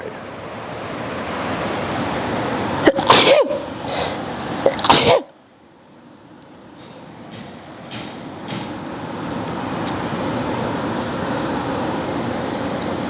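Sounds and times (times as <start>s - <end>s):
person sneezing: 2.8s - 5.3s
steady rushing noise: 7.0s - 13.0s.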